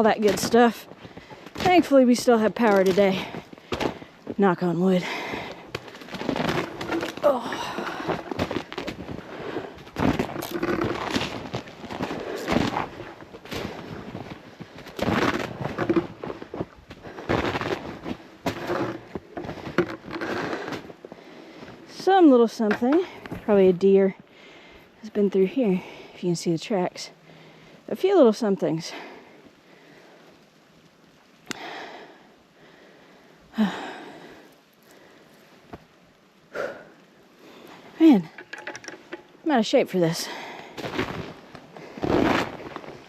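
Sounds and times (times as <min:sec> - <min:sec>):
footsteps crunching icy snow: 0:00.0 - 0:24.0, 0:39.0 - 0:43.0.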